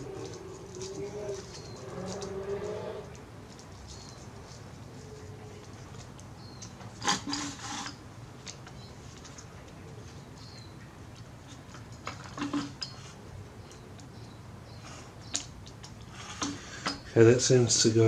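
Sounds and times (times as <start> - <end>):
small engine parts clicking: 0.0 - 4.2.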